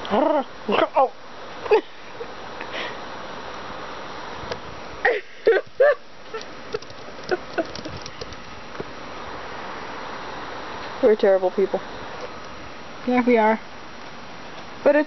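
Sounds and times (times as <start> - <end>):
faint clicks: 5.5 - 8.9.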